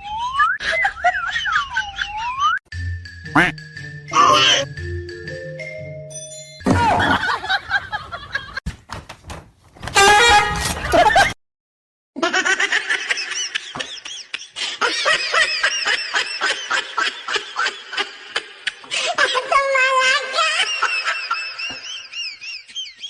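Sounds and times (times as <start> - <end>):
high-pitched laughter: 0.5 - 2.5, 12.2 - 23.0.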